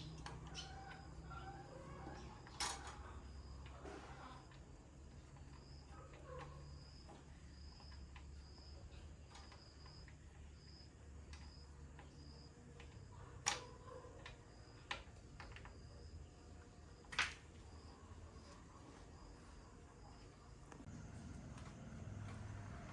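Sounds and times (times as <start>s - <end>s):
faint high chirping: 0.0s - 15.0s.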